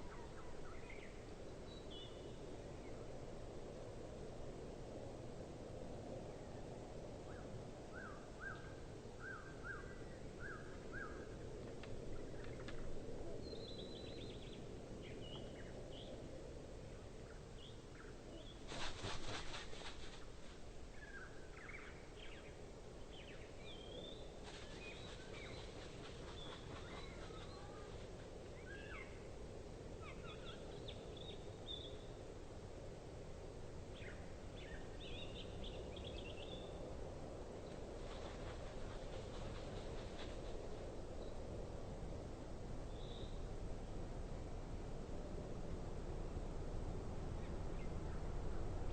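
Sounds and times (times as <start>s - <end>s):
outdoor background hiss: 0.0s - 48.9s.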